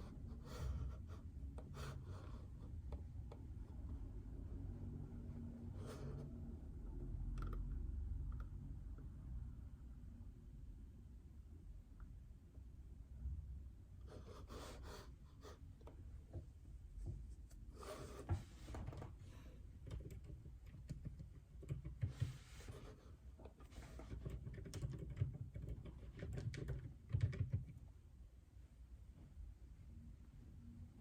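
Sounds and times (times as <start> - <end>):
quiet keyboard typing: 18.9 - 28.0.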